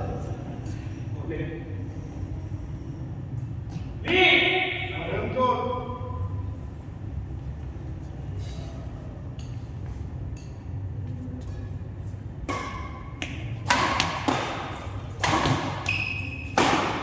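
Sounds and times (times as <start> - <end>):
rackets striking shuttlecock: 12.4 - 17.0.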